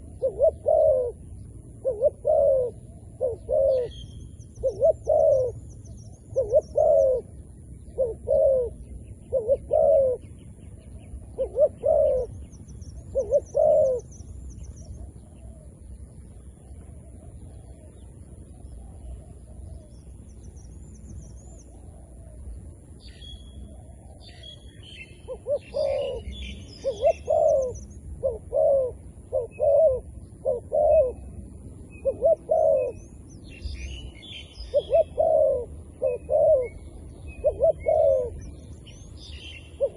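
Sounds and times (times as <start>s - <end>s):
doves cooing: 0.0s - 14.2s, 21.4s - 23.0s, 23.6s - 33.2s, 34.3s - 39.9s
small birds chirping: 0.0s - 39.9s.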